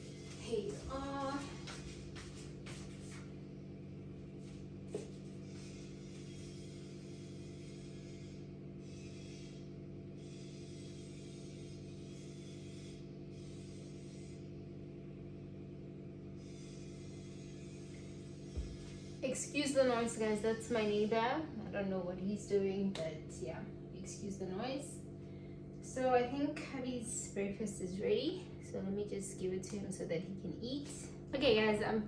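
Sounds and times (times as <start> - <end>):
machine drone with hiss: 5.2 - 21.2.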